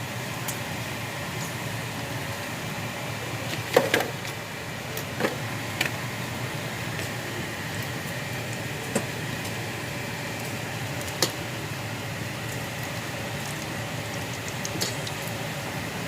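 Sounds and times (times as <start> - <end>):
bacon sizzling in a pan: 6.0 - 16.0.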